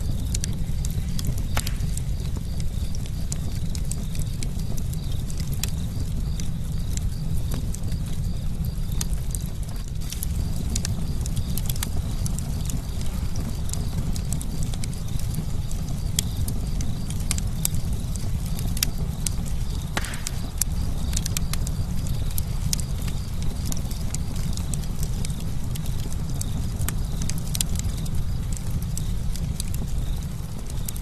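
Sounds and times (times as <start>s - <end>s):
campfire crackling: 0.0s - 31.0s
loud fire pop: 1.2s - 2.6s, 19.8s - 21.6s.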